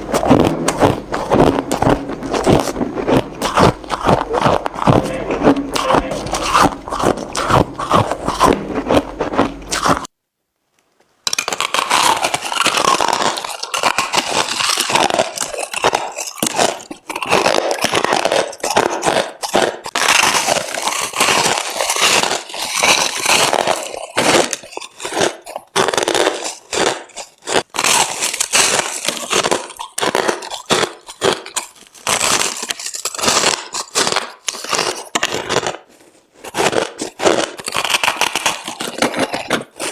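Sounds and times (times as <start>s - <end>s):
crushed ice crunching: 11.3s - 35.8s.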